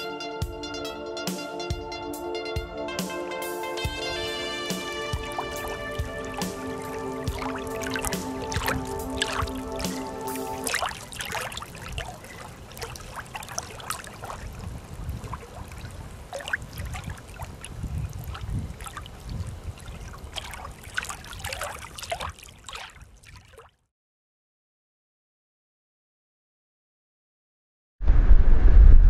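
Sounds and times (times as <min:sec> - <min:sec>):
music cue: 0:00.0 - 0:10.8
water trickling and lapping: 0:03.8 - 0:23.9
small splashes and clicks: 0:04.8 - 0:23.8
low rumble: 0:28.0 - 0:29.0.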